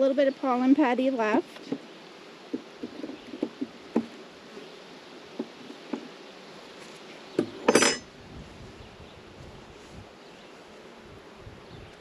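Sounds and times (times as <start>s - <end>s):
honeybees buzzing: 0.0s - 12.0s
knocks of hive parts: 2.5s - 4.3s, 5.3s - 6.1s.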